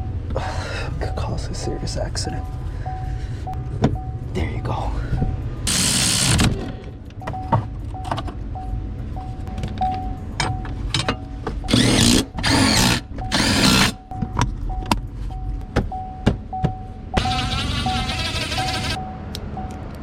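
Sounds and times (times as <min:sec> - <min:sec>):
power drill bursts: 0:05.7 - 0:06.4, 0:11.7 - 0:14.0, 0:17.2 - 0:19.0.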